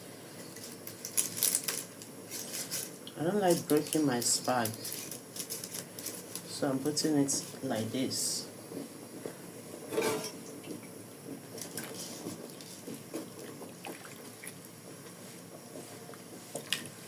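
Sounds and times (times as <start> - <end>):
pot of water bubbling: 10.3 - 15.2.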